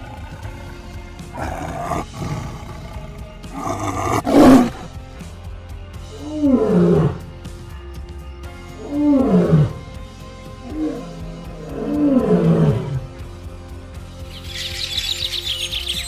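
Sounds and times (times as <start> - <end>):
rough animal calls: 0.0 - 4.9, 10.6 - 13.2, 14.3 - 16.0
background music: 0.0 - 16.0.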